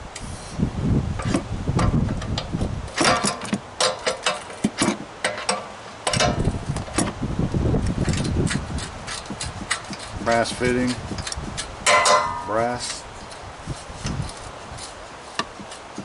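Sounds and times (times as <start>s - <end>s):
rumbling handling noise: 0.0s - 16.0s
metal tools clicking and knocking: 3.0s - 6.5s, 11.2s - 13.0s.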